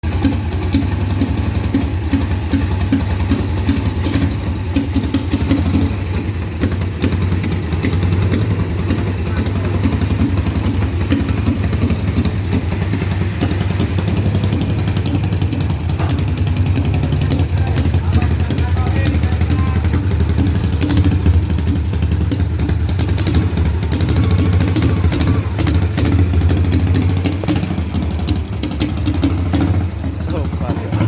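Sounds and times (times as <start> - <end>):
engine idling: 0.0 - 31.0.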